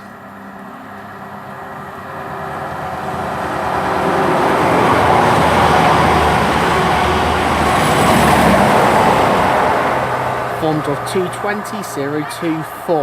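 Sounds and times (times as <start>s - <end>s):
diesel train passing: 0.0s - 13.0s.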